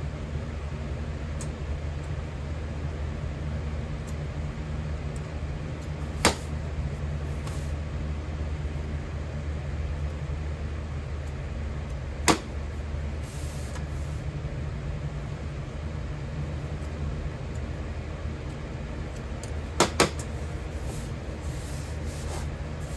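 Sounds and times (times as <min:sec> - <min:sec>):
low mechanical hum: 0:00.0 - 0:22.9
sharp knocks: 0:19.8 - 0:20.2.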